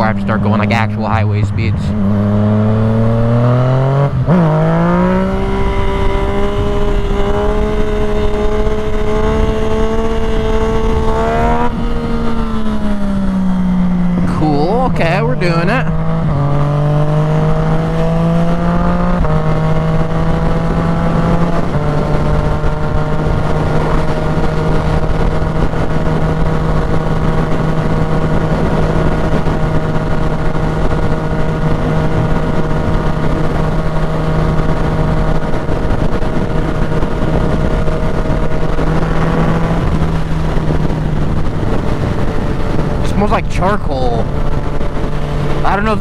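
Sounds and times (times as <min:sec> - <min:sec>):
motorcycle engine accelerating: 0:00.0 - 0:46.0
wind noise: 0:00.0 - 0:46.0.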